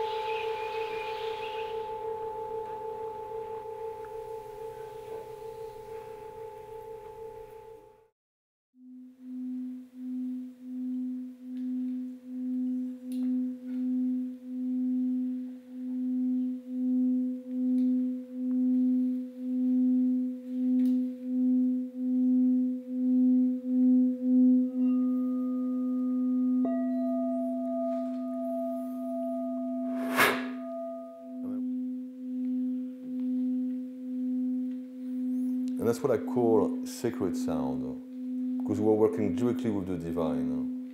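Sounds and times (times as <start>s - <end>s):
sharp bowl strike: 0.0s - 7.7s, 29.5s - 31.6s
higher singing bowl tone: 0.0s - 8.1s, 8.8s - 40.9s
singing bowl low tone: 0.0s - 8.1s, 8.8s - 40.9s.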